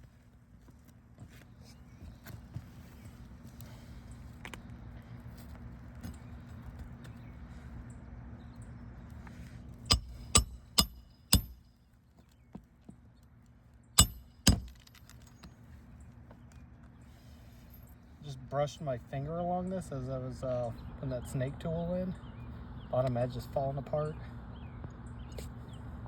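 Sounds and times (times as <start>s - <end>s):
low steady rumble: 3.0s - 11.8s
metal tool clinking under shingles: 9.9s - 11.7s, 14.0s - 15.6s.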